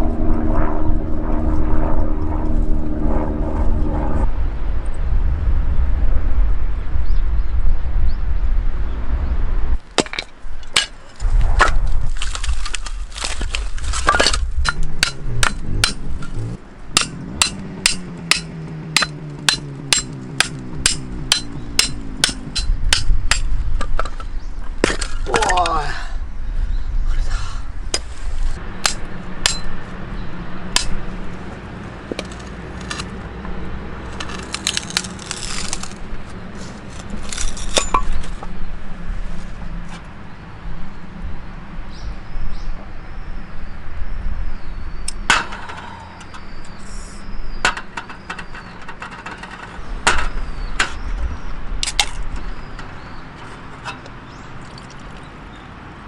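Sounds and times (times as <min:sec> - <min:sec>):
sharp knocks and clinks: 0:37.4 - 0:38.3.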